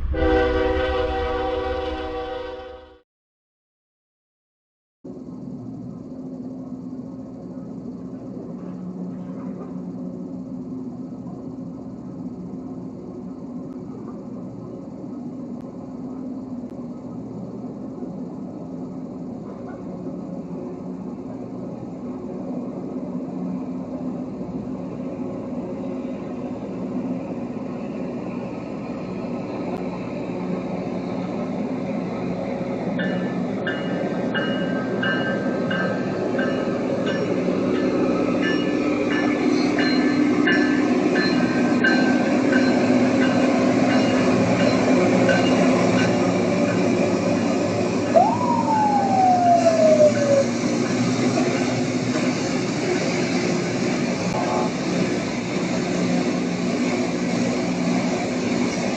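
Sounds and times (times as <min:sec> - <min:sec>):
train diesel engines droning: 0:00.0 - 0:02.9, 0:05.1 - 0:58.9
rising and falling whistle: 0:48.1 - 0:50.8.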